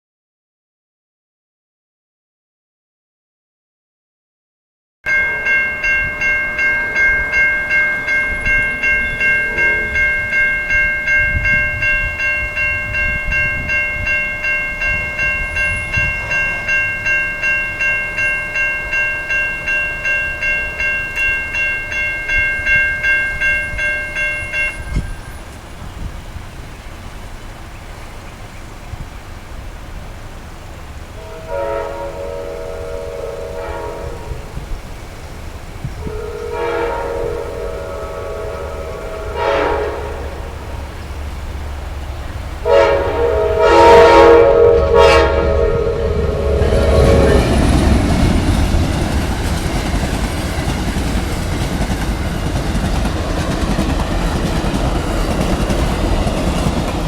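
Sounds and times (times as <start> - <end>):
train horn chord: 5.1 - 25.3, 31.1 - 34.8, 35.9 - 41.5, 42.6 - 49.9
railroad crossing bell ringing: 5.1 - 25.7, 31.0 - 57.0.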